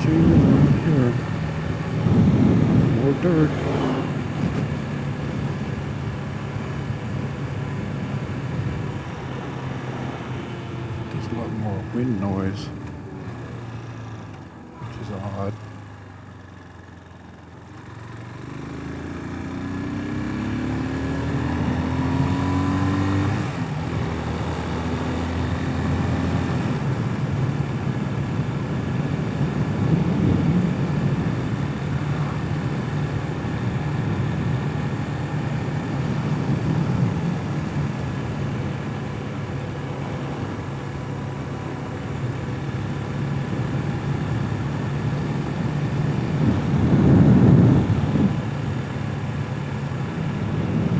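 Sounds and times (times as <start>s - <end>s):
wind noise on microphone: 0.0s - 5.6s, 26.7s - 32.5s, 35.8s - 38.0s, 45.2s - 48.6s, 50.1s - 50.9s
motorcycle engine accelerating: 0.0s - 50.9s.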